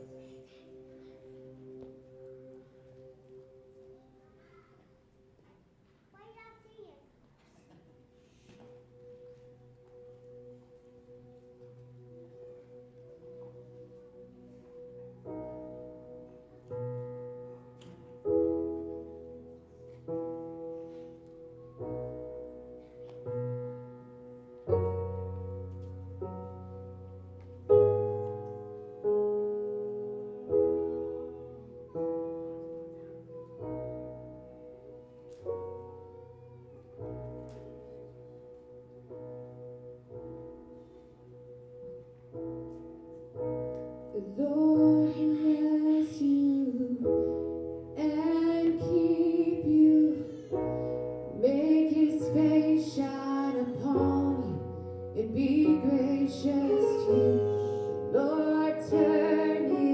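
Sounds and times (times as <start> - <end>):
piano chords: 0.0 - 6.0, 7.5 - 59.9
woman singing: 44.2 - 47.1, 48.0 - 50.5, 51.3 - 59.9.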